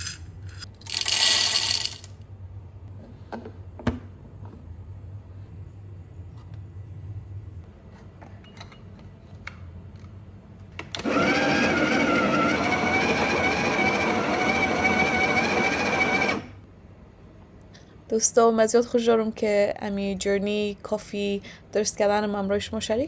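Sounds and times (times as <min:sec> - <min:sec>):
espresso machine whining: 0:11.0 - 0:16.6.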